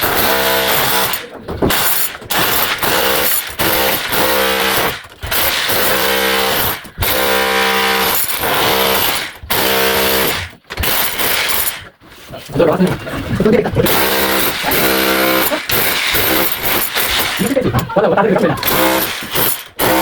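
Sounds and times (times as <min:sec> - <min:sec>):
power tool running in bursts: 0:01.8 - 0:11.8, 0:13.8 - 0:17.6, 0:18.6 - 0:20.0.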